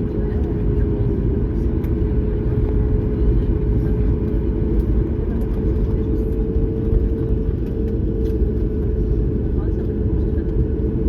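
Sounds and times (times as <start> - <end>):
jet engine rumble: 0.0 - 11.0.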